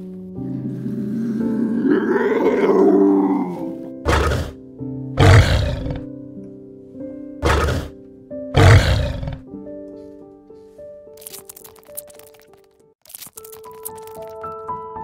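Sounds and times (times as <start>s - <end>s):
soft piano music: 0.0s - 5.2s, 6.0s - 11.3s, 13.8s - 15.0s
lioness snoring: 0.7s - 4.6s, 5.2s - 6.0s, 7.4s - 7.9s, 8.6s - 9.4s.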